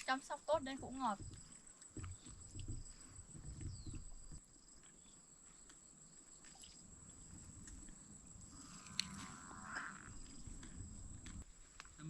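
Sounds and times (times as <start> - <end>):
soft low knocks and rustles: 0.0 - 4.4
high-pitched insect trill: 0.1 - 11.4.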